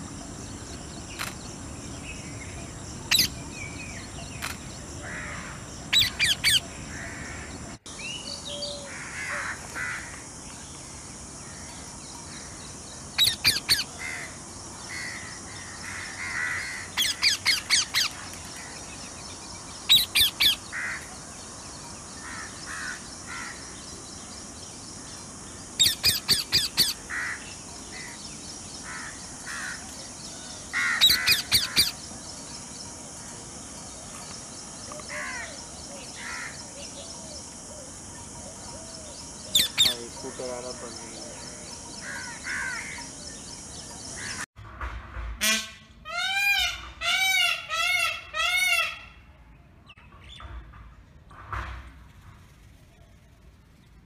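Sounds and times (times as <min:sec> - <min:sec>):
soft bird calls: 0:00.0 - 0:10.2, 0:13.1 - 0:24.0, 0:25.0 - 0:44.5
steady high hiss: 0:00.0 - 0:44.5.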